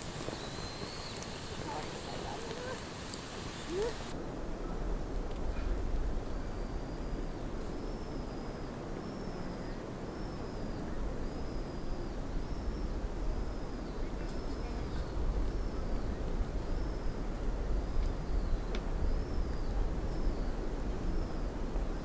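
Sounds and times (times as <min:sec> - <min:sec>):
small bird calling: 0:00.0 - 0:04.2.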